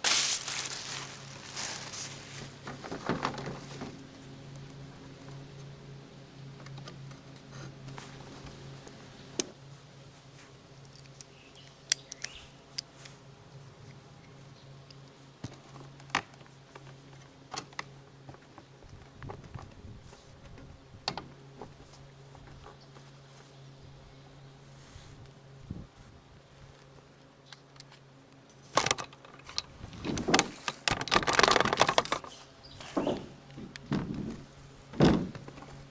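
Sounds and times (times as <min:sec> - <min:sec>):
scraping tar off roof: 0:00.0 - 0:04.1
low hum: 0:00.0 - 0:35.9.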